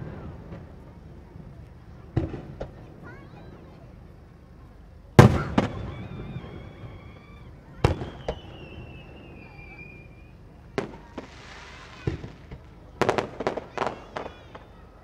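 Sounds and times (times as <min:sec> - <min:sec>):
firework bangs: 0:00.0 - 0:04.2, 0:05.1 - 0:15.0
firework whistling: 0:05.1 - 0:15.0
firework hiss: 0:05.2 - 0:15.0.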